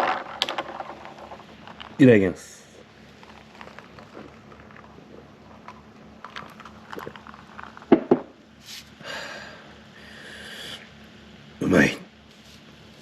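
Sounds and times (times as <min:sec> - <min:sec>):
person chewing: 0:03.2 - 0:07.9
loud knocks: 0:07.9 - 0:08.4.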